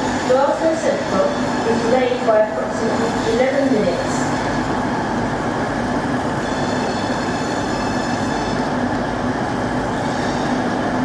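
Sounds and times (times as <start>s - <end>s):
diesel locomotive engine running: 0.0s - 11.0s
rolling train rumble: 0.0s - 11.0s
high wheel squeal: 6.2s - 8.8s, 9.8s - 10.7s.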